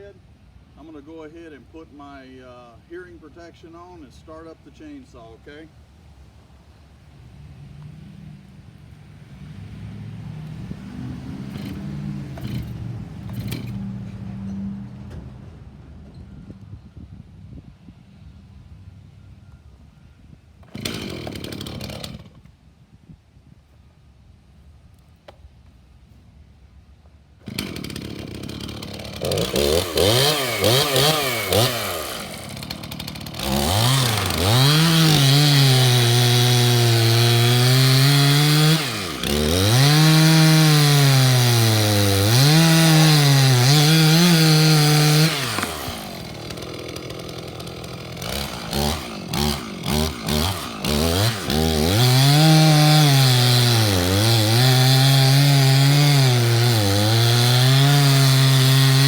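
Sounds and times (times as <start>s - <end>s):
chainsaw cutting log: 10.9s - 13.9s, 20.6s - 22.5s, 27.4s - 59.0s.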